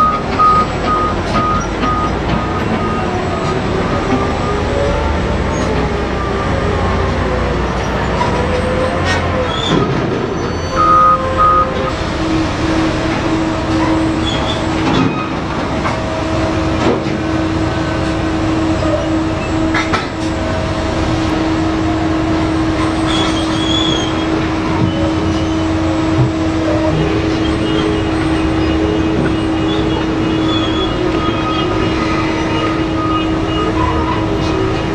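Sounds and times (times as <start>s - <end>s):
heavy truck running: 0.0s - 34.9s
short beeps: 10.7s - 11.9s.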